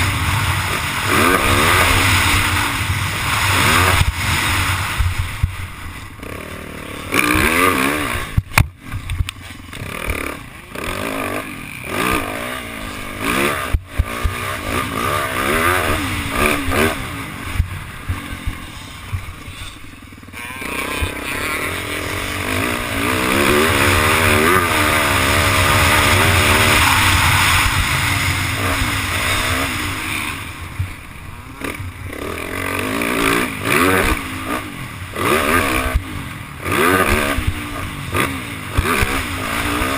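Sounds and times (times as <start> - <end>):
wind rushing over microphone: 0.0 - 6.3, 22.2 - 32.0
dirt bike engine revving: 0.0 - 39.9.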